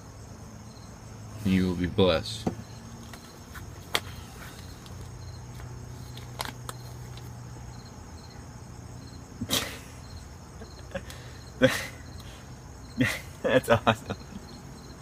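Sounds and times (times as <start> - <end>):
crickets chirping: 0.0 - 15.0
pages rustling: 3.0 - 7.4.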